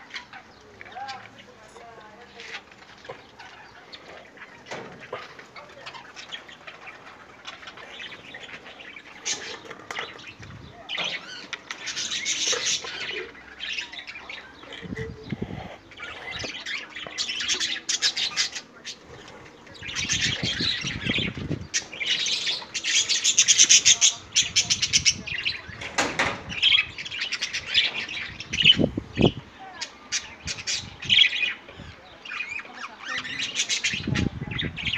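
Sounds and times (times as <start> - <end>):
budgerigars chirping: 2.3 - 29.4.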